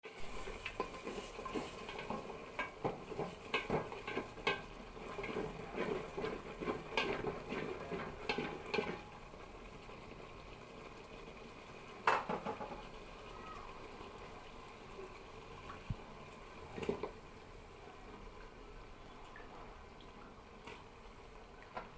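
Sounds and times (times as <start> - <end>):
utensils and dishes clattering: 0.4 - 9.1.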